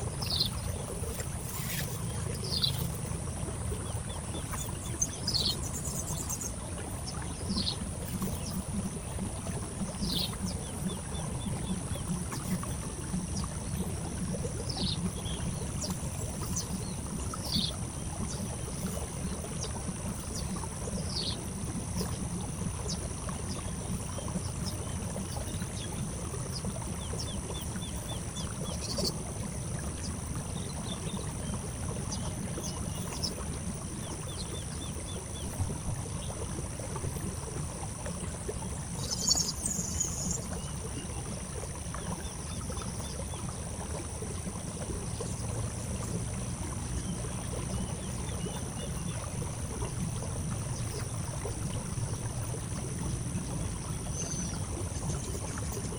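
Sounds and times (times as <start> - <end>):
birds chirping: 0.2 - 19.0, 39.0 - 40.7.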